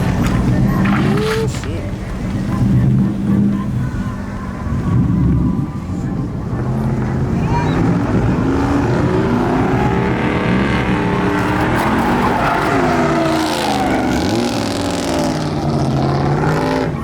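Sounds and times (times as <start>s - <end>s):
car engine revving hard: 4.6s - 17.0s
tyre squeal and skidding: 7.3s - 17.0s.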